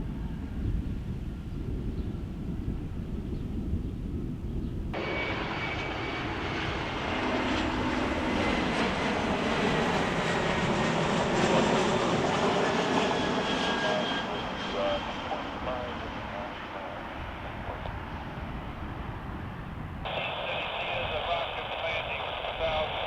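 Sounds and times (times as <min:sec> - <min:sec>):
low wind rumble: 0:00.0 - 0:23.0
jet engines roaring: 0:04.9 - 0:23.0.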